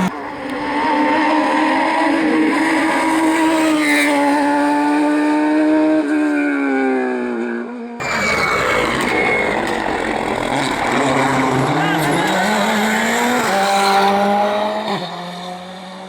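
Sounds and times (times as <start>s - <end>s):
race car engine at high revs: 0.0s - 16.0s
noisier engine sound: 8.0s - 15.3s.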